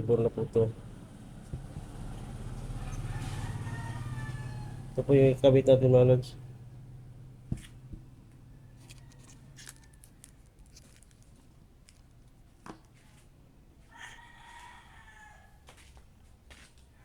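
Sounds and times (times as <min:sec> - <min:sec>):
rooster crowing: 0:02.0 - 0:05.3, 0:08.4 - 0:10.5, 0:13.8 - 0:16.0.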